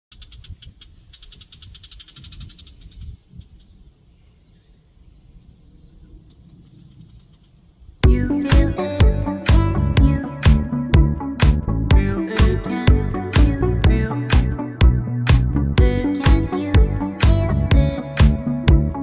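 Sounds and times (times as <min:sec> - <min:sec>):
bird chattering: 0:00.1 - 0:03.9
loud music: 0:08.0 - 0:19.0.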